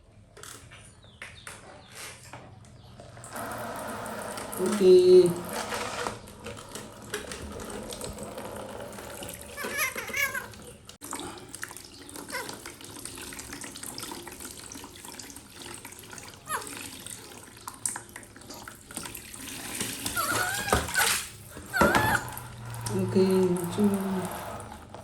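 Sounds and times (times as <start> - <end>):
tap water running into bath: 3.0 - 25.0
baby monkey high-pitched calls: 9.6 - 10.5, 16.5 - 16.8, 20.2 - 22.3.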